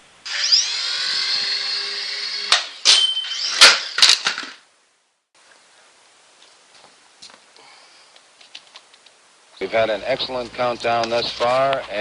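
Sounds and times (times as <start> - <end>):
toy helicopter motor whine: 0.2 - 4.5.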